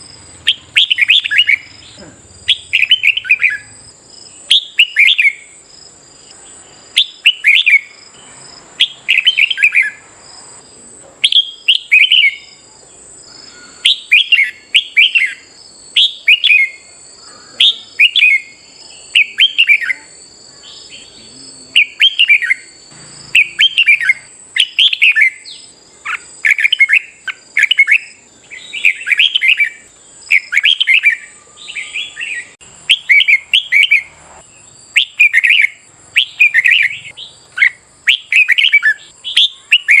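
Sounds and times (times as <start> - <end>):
birds singing whistled phrases: 0.0 - 5.6, 6.2 - 10.1, 11.2 - 40.0
thin high-pitched whine: 12.4 - 30.1.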